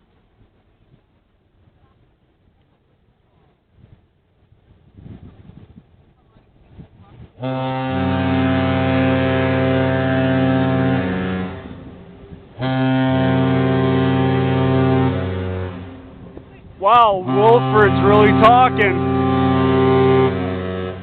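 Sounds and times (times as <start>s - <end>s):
ship's horn deep blasts: 7.4s - 21.0s.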